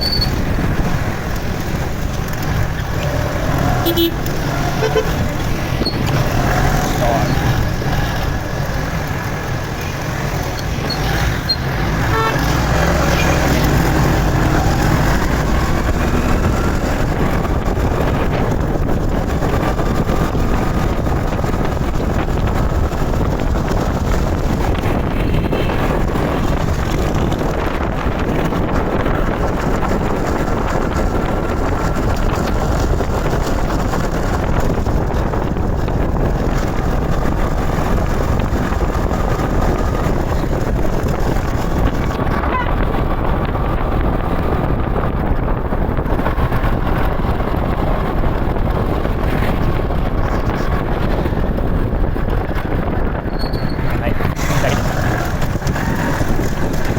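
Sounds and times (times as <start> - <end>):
motorcycle road and wind noise: 0.0 - 56.9
vehicle horns: 3.0 - 7.5, 10.8 - 13.9, 42.3 - 43.0.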